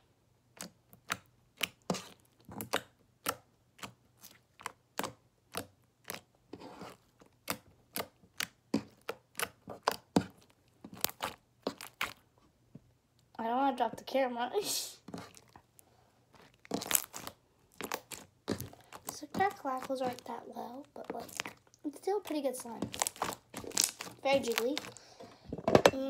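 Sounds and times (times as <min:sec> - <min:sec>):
slime squished by hand: 0:00.6 - 0:12.3, 0:16.4 - 0:25.3.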